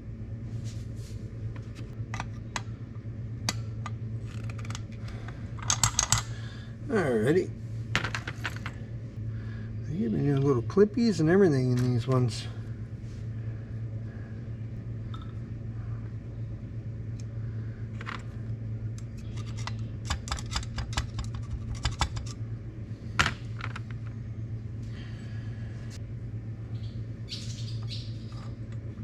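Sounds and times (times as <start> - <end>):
steady low hum: 0.0 - 29.0
metal parts and tool clicking: 5.6 - 6.4, 19.0 - 22.4.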